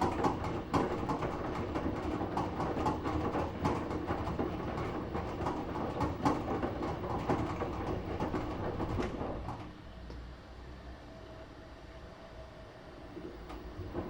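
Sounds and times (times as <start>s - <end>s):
knocks of wet laundry in drum: 0.0s - 9.7s
washing machine tumbling: 0.0s - 10.0s, 12.9s - 14.0s.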